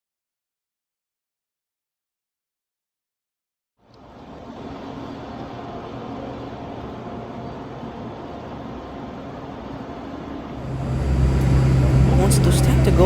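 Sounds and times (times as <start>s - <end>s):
airplane cabin rumble: 10.5s - 13.0s
low hum: 10.5s - 13.0s.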